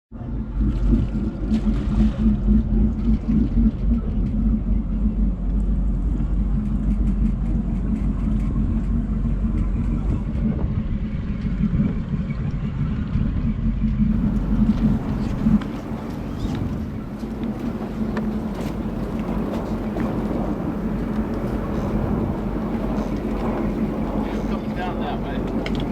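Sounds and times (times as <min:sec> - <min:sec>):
boat engines rumbling: 0:00.2 - 0:25.9.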